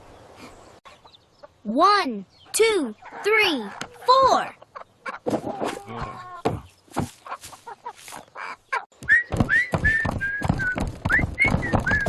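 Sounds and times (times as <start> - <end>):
low rhythmic thuds: 9.0 - 12.0
scattered taps: 9.0 - 12.0
whistled tune: 9.0 - 12.0.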